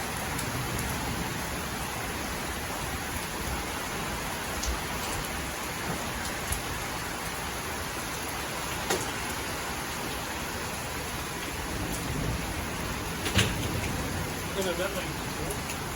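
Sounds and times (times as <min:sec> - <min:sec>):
heavy rain falling: 0:00.0 - 0:15.9
single raindrop taps: 0:08.8 - 0:09.4, 0:13.2 - 0:14.0.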